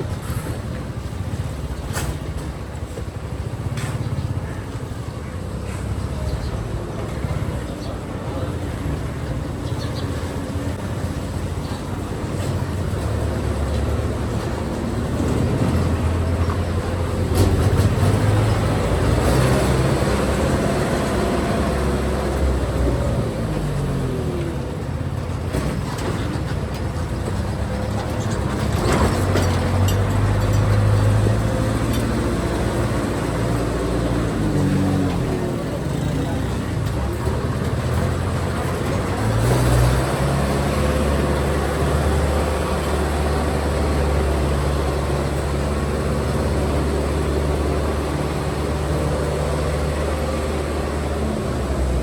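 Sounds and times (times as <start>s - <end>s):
road and wind noise: 0.0s - 52.0s
motorcycle engine revving: 12.5s - 24.8s.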